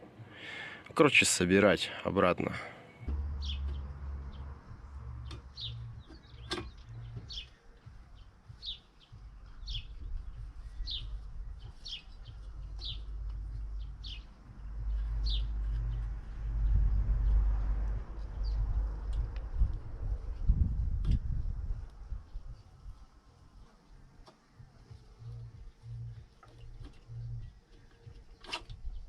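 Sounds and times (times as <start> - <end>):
low rumble: 3.0 - 23.0
small bird chirping: 3.4 - 17.4.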